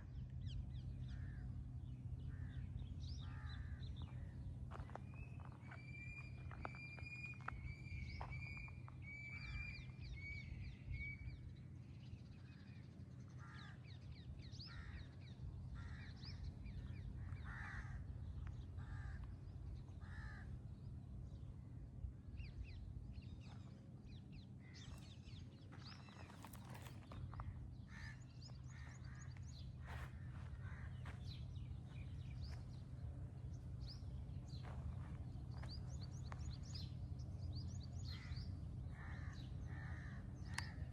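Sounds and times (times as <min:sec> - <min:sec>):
crows cawing: 0:03.2 - 0:04.2, 0:13.4 - 0:13.8, 0:14.7 - 0:15.0, 0:15.8 - 0:16.2, 0:17.2 - 0:18.2, 0:18.8 - 0:19.3, 0:20.0 - 0:20.5, 0:26.4 - 0:31.2, 0:38.1 - 0:40.8.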